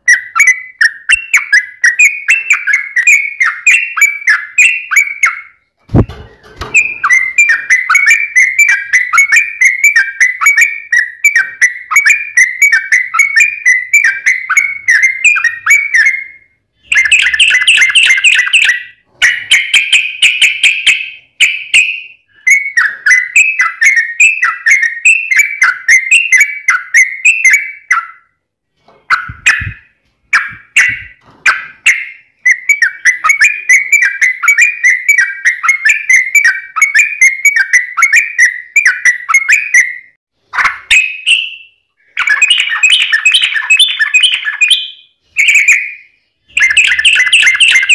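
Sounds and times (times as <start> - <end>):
bulbul singing: 0.0 - 28.4, 29.1 - 47.9.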